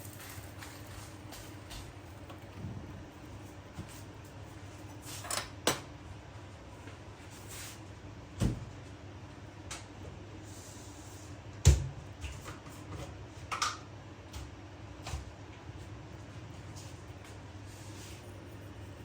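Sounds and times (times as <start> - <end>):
steady low hum: 0.0 - 5.0, 14.0 - 19.0.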